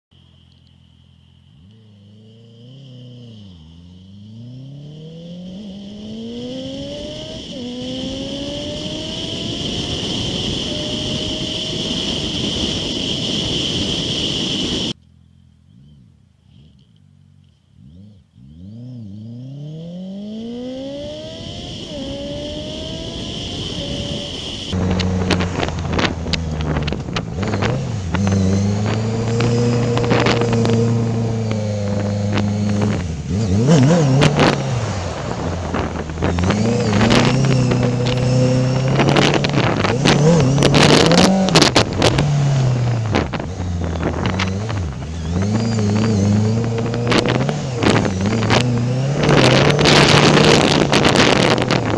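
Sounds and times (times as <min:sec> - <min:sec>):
motorcycle engine revving: 0:01.5 - 0:51.9
exhaust cracks and buffets: 0:21.3 - 0:51.9.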